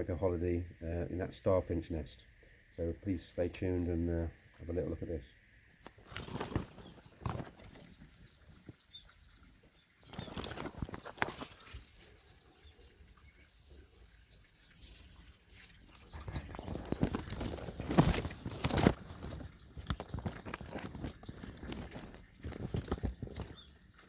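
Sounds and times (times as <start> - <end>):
birds fluttering wings: 5.8 - 24.0.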